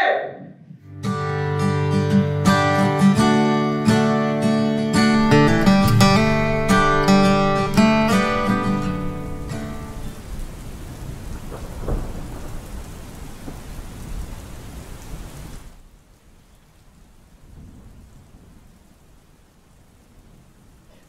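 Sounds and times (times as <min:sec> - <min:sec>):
heavy rain: 0:01.1 - 0:21.0
rolling thunder: 0:05.1 - 0:15.8, 0:17.4 - 0:18.8.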